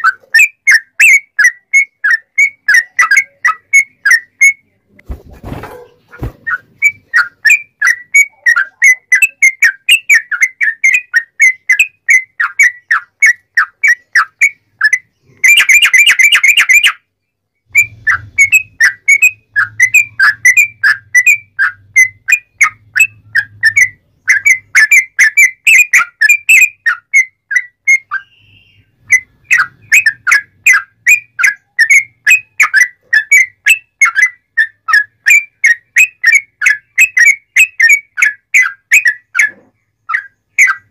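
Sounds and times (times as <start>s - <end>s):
bird singing whistled notes: 0.0s - 4.8s, 6.3s - 40.9s.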